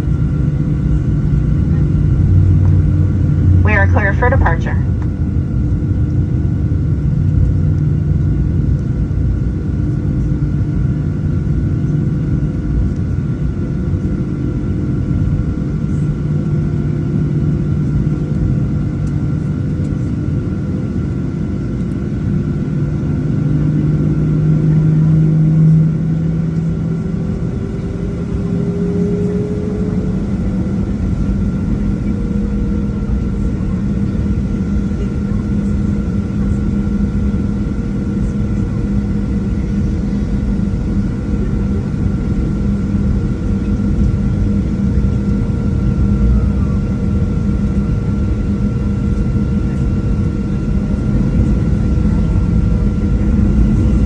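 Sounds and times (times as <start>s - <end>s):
jet engine cabin rumble: 0.0s - 54.0s
constant tones: 3.6s - 5.1s.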